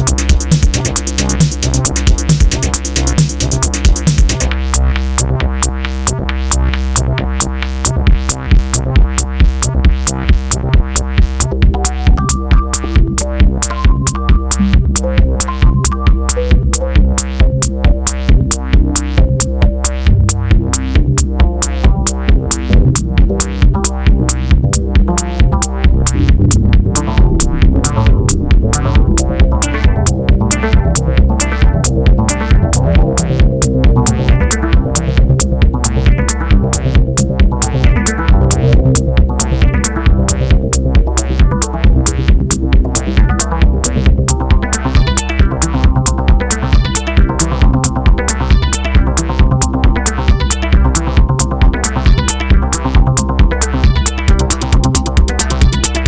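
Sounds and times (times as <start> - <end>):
bright hi-hat layer: 0.0 - 4.6, 25.2 - 30.6
drum machine beat: 0.0 - 56.0
held synth bass: 0.0 - 56.0
short synth melody notes: 25.9 - 30.0.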